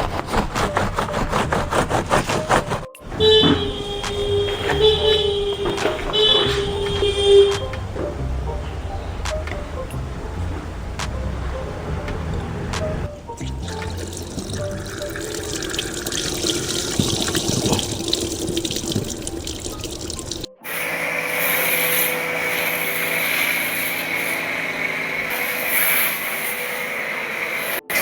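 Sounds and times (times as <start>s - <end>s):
water running and splashing: 9.2s - 20.6s
machine hum with hiss: 20.6s - 28.0s.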